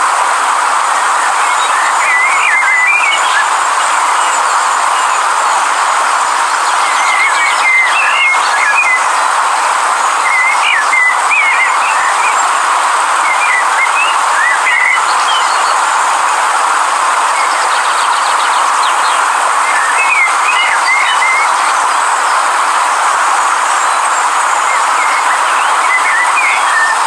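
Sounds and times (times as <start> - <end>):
river rushing: 0.0 - 27.0
songbird singing: 0.8 - 27.0.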